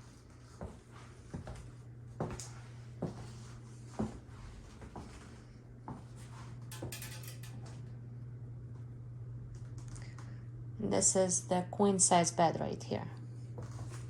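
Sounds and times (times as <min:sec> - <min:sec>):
footsteps on hard floor: 0:04.0 - 0:04.2
low hum: 0:05.4 - 0:14.0.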